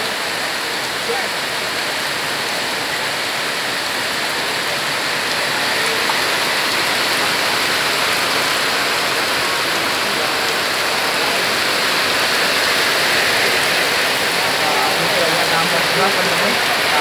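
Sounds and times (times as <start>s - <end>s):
heavy rain hissing: 0.0s - 17.0s.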